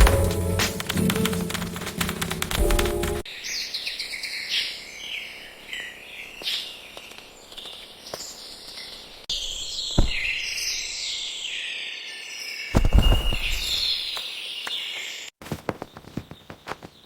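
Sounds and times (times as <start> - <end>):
music: 0.0 - 3.3
small birds chirping: 3.3 - 17.0
brief thump: 10.0 - 10.4.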